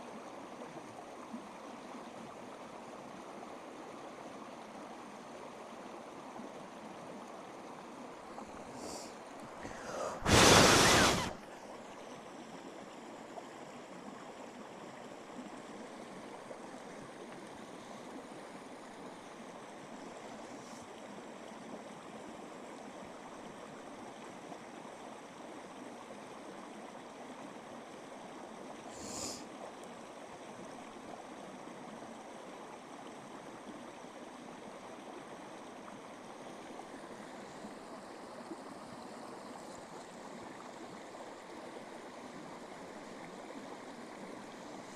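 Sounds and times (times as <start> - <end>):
running water rushing: 7.8 - 12.8.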